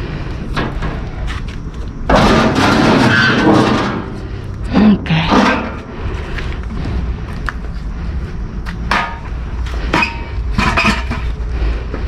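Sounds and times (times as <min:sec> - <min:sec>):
low rumble: 0:00.0 - 0:12.0
junk clattering in dumpster: 0:02.0 - 0:05.9, 0:08.9 - 0:11.4.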